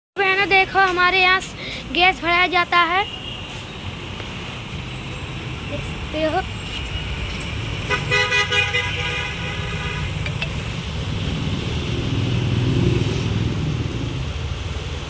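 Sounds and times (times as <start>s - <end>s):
car engine rumbling: 4.0s - 15.0s
vehicle horn tone: 7.8s - 10.8s.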